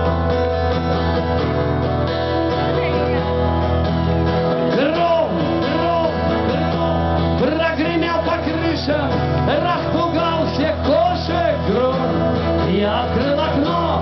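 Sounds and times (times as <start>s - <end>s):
rock band instrumental: 0.0s - 14.0s.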